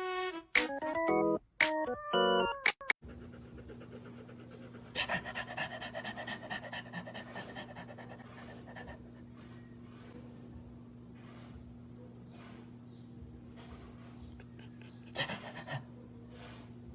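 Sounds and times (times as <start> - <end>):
dog panting rapidly: 3.0 - 10.4, 13.8 - 16.8
steady low hum: 3.0 - 16.9.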